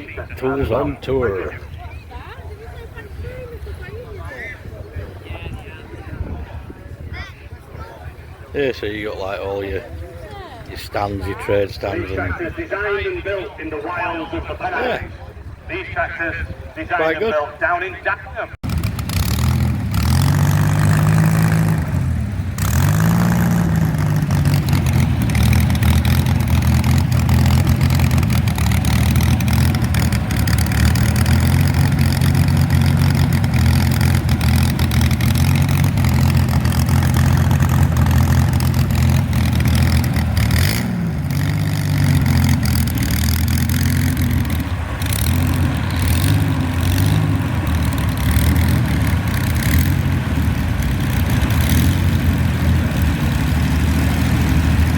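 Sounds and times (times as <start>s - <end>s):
tractor engine running: 18.6s - 54.9s.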